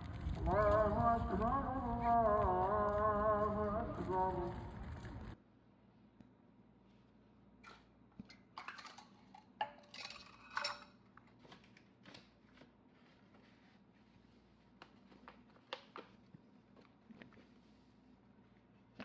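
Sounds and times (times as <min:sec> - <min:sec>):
dishes clinking: 0:08.6 - 0:11.0.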